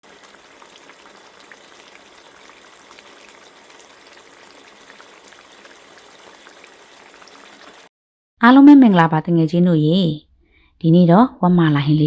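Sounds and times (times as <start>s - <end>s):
food hissing in a pot: 0.0s - 7.9s.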